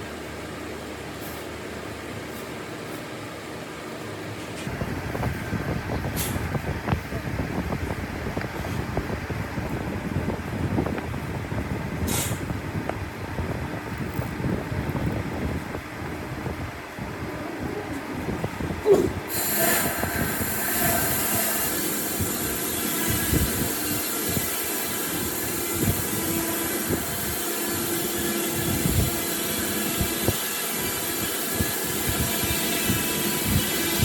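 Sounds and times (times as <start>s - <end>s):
power tool whining: 19.3s - 34.0s.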